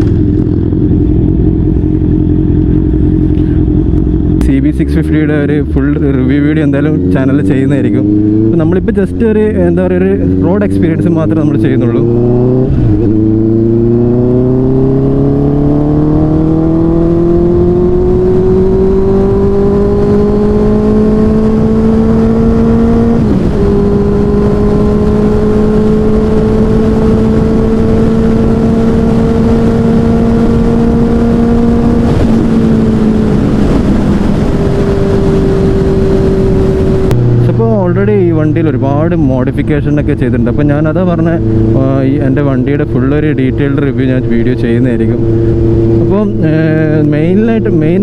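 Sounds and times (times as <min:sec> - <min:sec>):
motorcycle engine running: 0:00.0 - 0:48.0
wind noise on microphone: 0:12.0 - 0:37.5.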